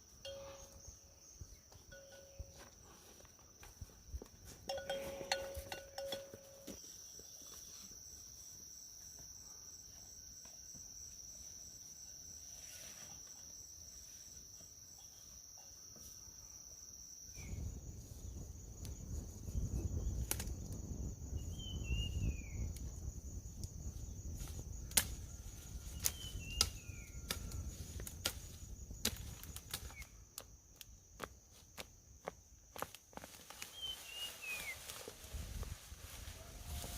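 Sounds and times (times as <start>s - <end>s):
crickets trilling: 0.0s - 36.9s.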